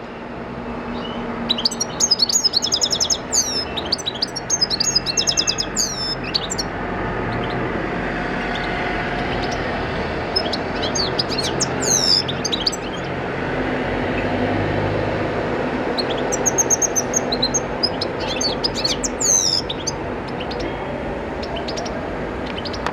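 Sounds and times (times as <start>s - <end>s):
steady background noise: 0.0s - 22.9s
goldfinch twittering chirps: 0.9s - 6.7s, 10.3s - 13.1s, 16.0s - 20.8s, 21.4s - 22.9s.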